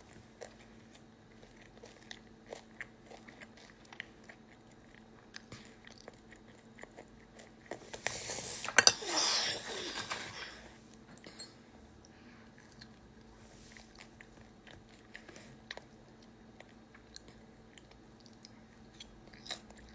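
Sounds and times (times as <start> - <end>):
person chewing food: 0.0 - 19.9.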